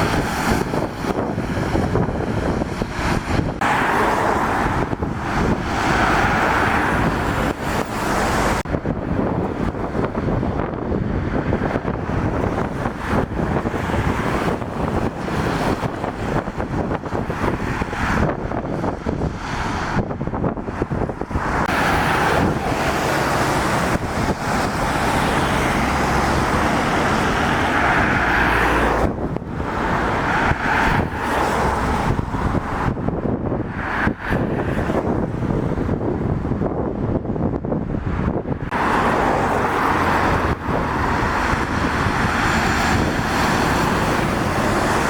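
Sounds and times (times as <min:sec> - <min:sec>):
traffic on a wet road: 0:00.0 - 0:45.0
wind buffeting the microphone: 0:00.0 - 0:45.0.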